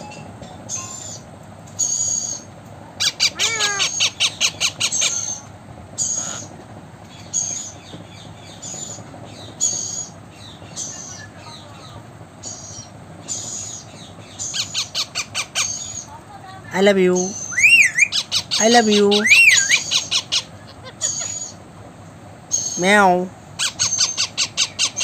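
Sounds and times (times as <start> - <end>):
parakeet shrill squawks: 3.0 - 5.4, 6.0 - 6.5, 17.4 - 21.6.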